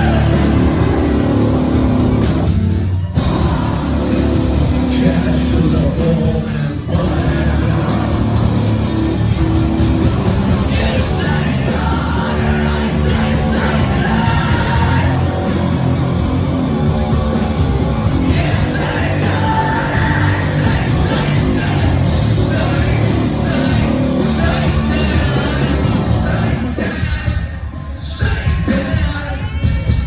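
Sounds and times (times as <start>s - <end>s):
live heavy rock band: 0.0s - 30.0s
singer yelling: 10.6s - 16.0s, 18.0s - 29.8s.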